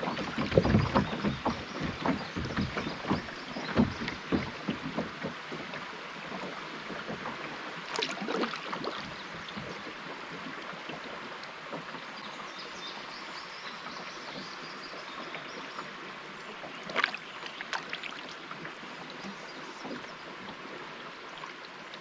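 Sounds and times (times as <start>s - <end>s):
river water running: 0.0s - 22.0s
sharp splash or knock: 7.9s - 9.1s, 16.9s - 18.2s.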